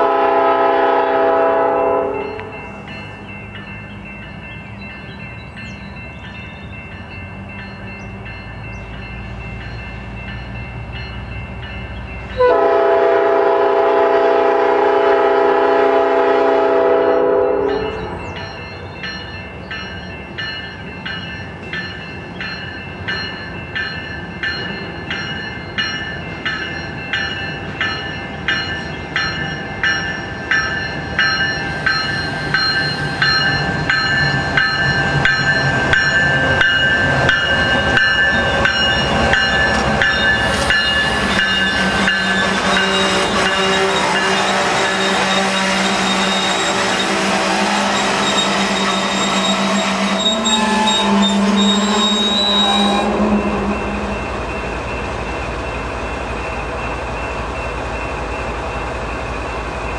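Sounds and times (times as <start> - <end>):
multi-tone train horn blast: 0.0 - 2.5, 12.3 - 18.2, 41.1 - 54.2
diesel locomotive engine rumbling: 0.0 - 59.9
locomotive bell ringing: 0.0 - 59.9.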